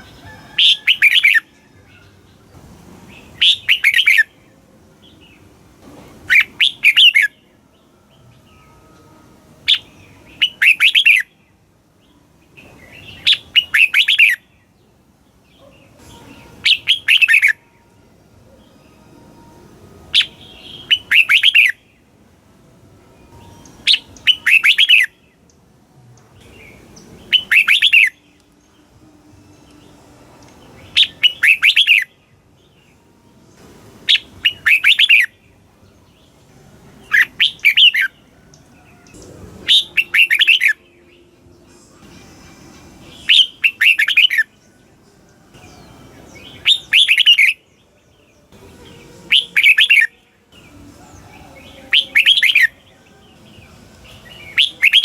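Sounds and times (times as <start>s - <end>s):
bird whistled song: 0.0s - 2.1s, 3.2s - 4.4s, 6.3s - 8.7s, 9.7s - 11.4s, 12.6s - 14.7s, 15.6s - 17.6s, 20.1s - 22.1s, 23.3s - 25.5s, 26.4s - 28.5s, 30.7s - 33.0s, 34.1s - 35.6s, 37.0s - 38.2s, 39.0s - 41.4s, 43.1s - 44.6s, 45.6s - 55.0s.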